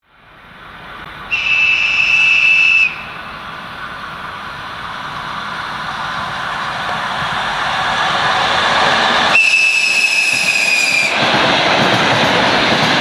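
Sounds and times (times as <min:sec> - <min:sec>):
approaching electric train: 0:00.0 - 0:13.0
high train whistle: 0:01.3 - 0:03.5, 0:08.3 - 0:11.3.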